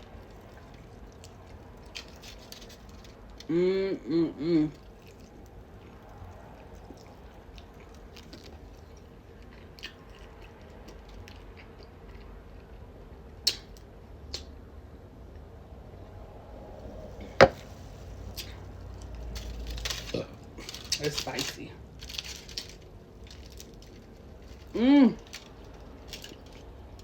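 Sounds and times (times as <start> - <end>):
person chewing with wet smacking: 0.0 - 3.4, 4.7 - 14.5.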